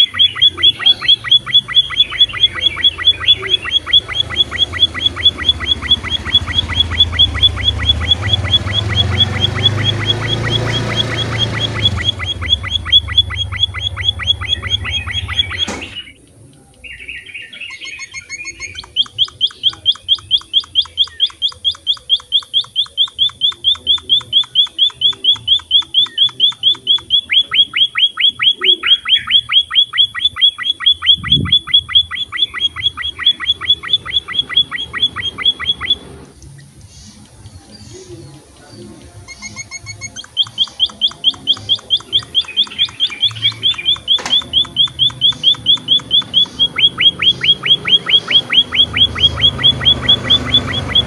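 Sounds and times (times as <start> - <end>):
finch chirping: 0.0 - 51.0
click: 15.5 - 16.9, 38.3 - 46.3.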